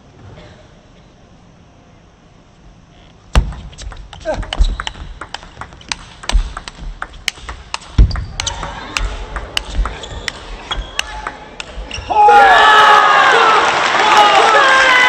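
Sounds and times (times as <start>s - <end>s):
table tennis ball clicking: 3.4s - 11.8s
low thud: 8.0s - 8.6s
crowd cheering and shouting: 11.0s - 15.0s.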